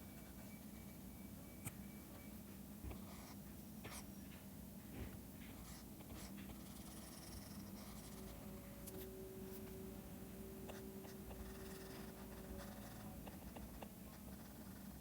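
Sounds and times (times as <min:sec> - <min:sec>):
stylus scratching on drawing tablet: 0:05.6 - 0:08.4, 0:10.6 - 0:15.0.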